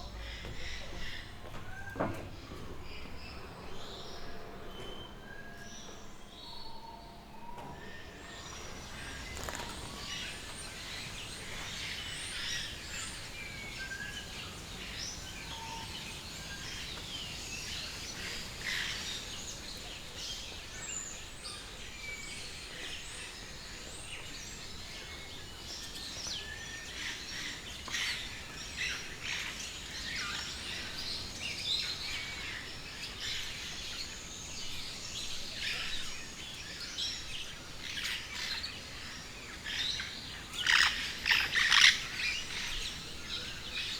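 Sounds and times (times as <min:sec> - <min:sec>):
steady background hum: 0:00.0 - 0:21.2
birds chirping and calling: 0:08.1 - 0:20.7, 0:27.1 - 0:43.9.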